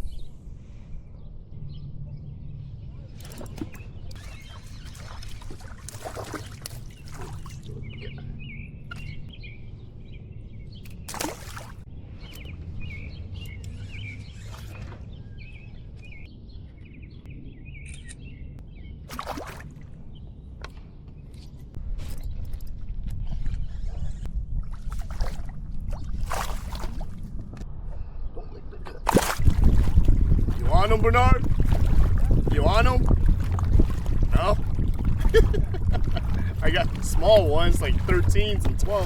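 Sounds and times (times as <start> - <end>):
birds chirping: 0.0 - 19.1, 27.9 - 39.0
water splashes and drips: 3.2 - 7.8, 11.1 - 11.9, 19.1 - 19.9, 24.6 - 27.3, 29.1 - 39.0
low steady rumble: 19.7 - 39.0.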